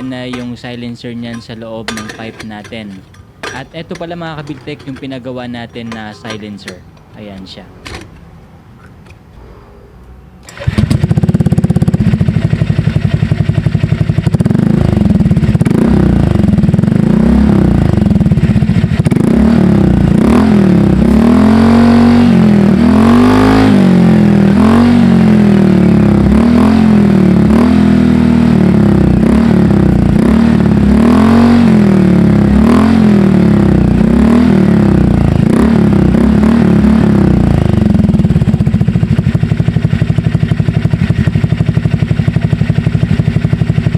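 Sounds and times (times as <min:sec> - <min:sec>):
scooter engine revving: 0:10.4 - 0:43.9.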